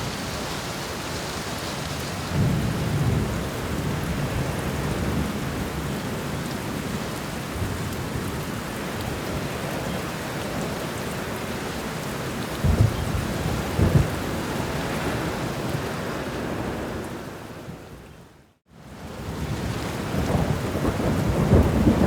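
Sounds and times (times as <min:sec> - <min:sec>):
steady rain: 0:00.0 - 0:22.0
rolling thunder: 0:02.3 - 0:05.9, 0:12.6 - 0:17.8, 0:19.3 - 0:22.0.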